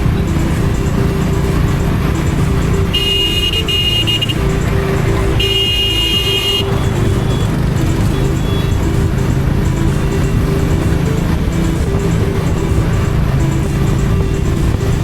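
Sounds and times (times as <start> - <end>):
motorcycle engine running: 0.0 - 15.0
vehicle horn honking: 2.8 - 8.8.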